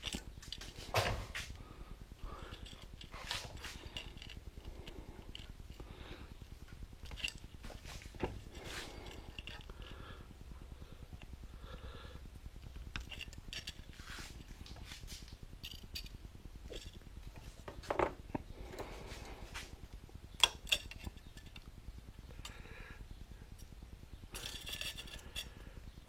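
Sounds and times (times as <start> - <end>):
small metal parts clinking: 0.0 - 0.8, 2.3 - 5.8, 7.0 - 9.7, 12.9 - 14.5, 15.6 - 17.1, 20.4 - 21.7, 24.3 - 25.6.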